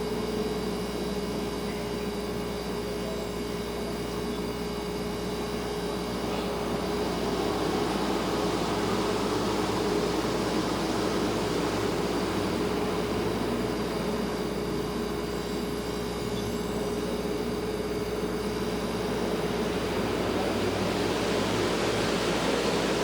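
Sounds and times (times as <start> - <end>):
refrigerator hum: 0.0 - 23.0
even hiss: 5.3 - 23.0.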